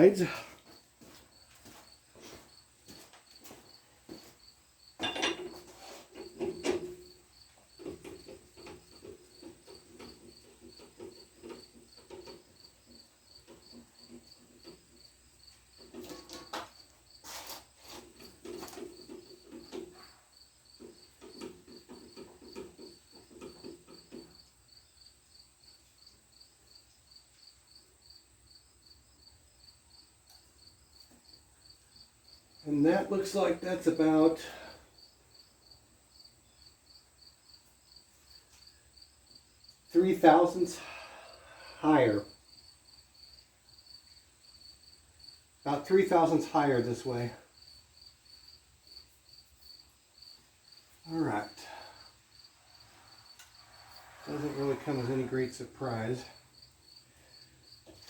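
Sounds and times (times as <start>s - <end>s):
cricket chirping: 0.0s - 32.7s, 34.7s - 45.6s, 46.6s - 58.0s
metal clinks and knocks: 5.0s - 7.2s
tool scraping on metal: 52.9s - 56.3s.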